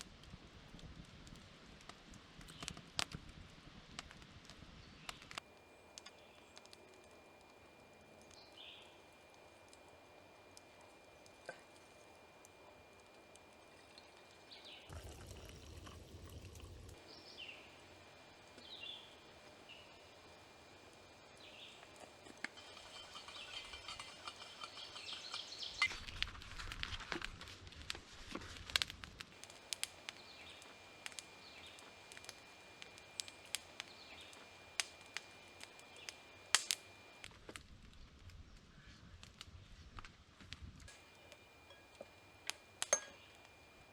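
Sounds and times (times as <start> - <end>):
faint bird chirps: 5.0 - 14.9, 17.0 - 26.0, 29.4 - 37.2
faint steady high tone: 40.9 - 43.9.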